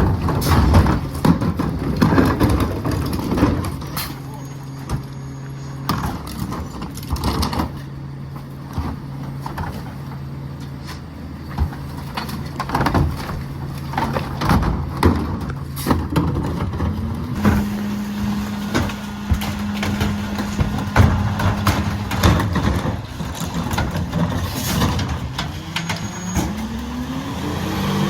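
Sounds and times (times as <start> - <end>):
trash knocking and clattering: 0.0 - 5.1, 5.8 - 27.1
truck diesel engine running: 13.5 - 28.0.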